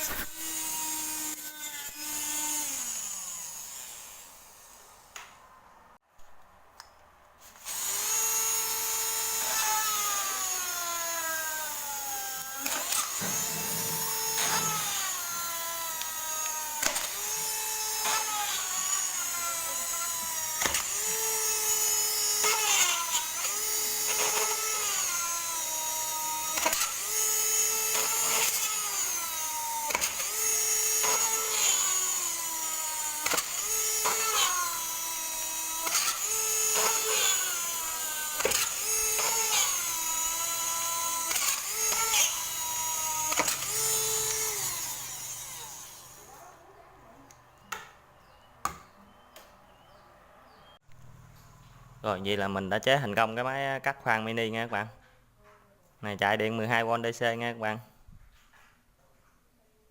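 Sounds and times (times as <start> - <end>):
small motor tool whining: 0.0 - 5.2, 7.4 - 46.6.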